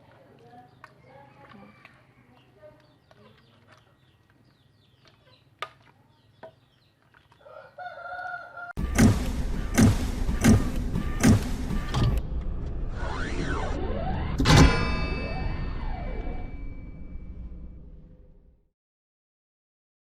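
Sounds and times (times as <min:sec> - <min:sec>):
rooster crowing: 0:07.4 - 0:08.8
music with strong beat: 0:08.8 - 0:12.2
gliding tones: 0:10.7 - 0:18.3.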